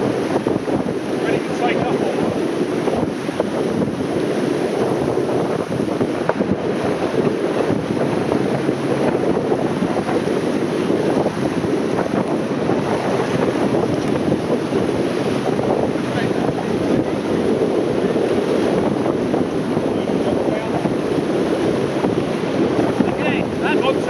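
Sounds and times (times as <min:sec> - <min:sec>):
water and waves rushing: 0:00.0 - 0:24.0
wind buffeting microphone: 0:00.0 - 0:24.0.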